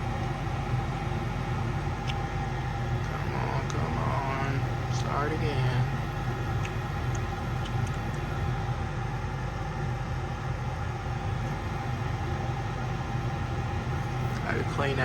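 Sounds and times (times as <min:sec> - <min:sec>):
furnace motor humming: 0:00.0 - 0:15.0.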